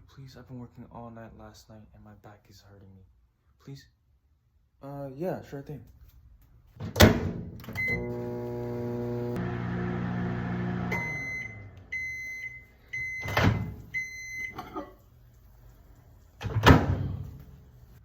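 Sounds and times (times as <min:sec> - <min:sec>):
microwave oven humming: 0:07.7 - 0:14.6
microwave beeps: 0:07.7 - 0:14.8.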